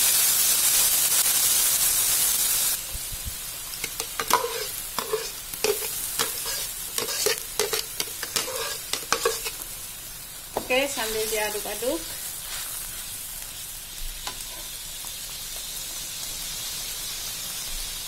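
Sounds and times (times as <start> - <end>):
spice paste sizzling in oil: 0.0 - 18.0
paste crackling and popping: 3.7 - 9.8.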